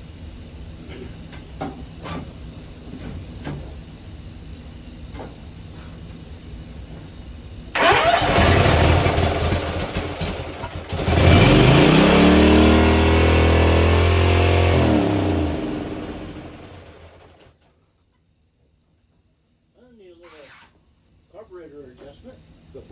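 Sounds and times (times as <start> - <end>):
mower engine starter cranking: 7.8 - 17.4
mower engine running: 7.8 - 17.5.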